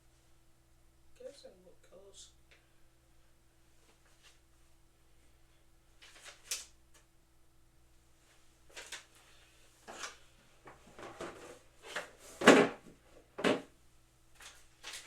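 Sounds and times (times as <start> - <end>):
equipment parts knocking and clunking: 12.4 - 13.7.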